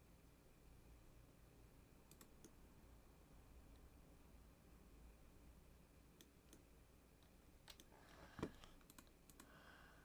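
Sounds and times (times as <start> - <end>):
keyboard and mouse clicks: 2.1 - 2.6, 6.2 - 9.5.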